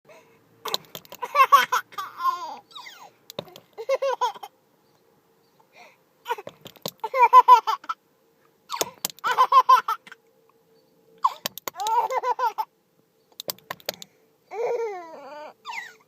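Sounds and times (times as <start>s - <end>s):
baby giggling: 0.7s - 4.5s, 6.3s - 8.0s, 8.7s - 10.2s, 11.2s - 12.7s, 14.5s - 16.0s
short clicks: 11.3s - 12.0s, 13.3s - 14.1s.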